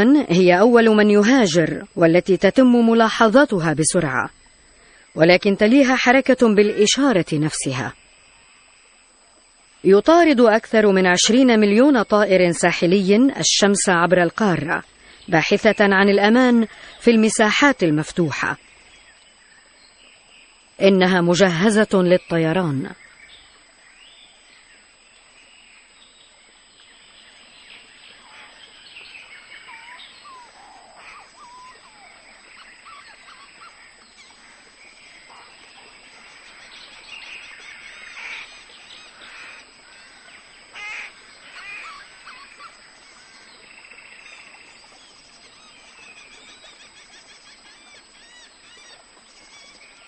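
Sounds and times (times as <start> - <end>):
shorebirds chirping and whistling: 27.2 - 50.0
rapid trilled bird call: 27.3 - 50.0.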